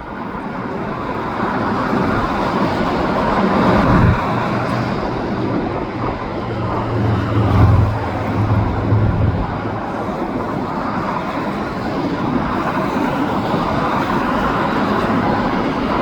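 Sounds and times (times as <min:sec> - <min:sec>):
highway traffic passing: 0:00.8 - 0:11.2
freight train rolling: 0:00.9 - 0:12.0
heavy vehicle engine hum: 0:01.4 - 0:11.0.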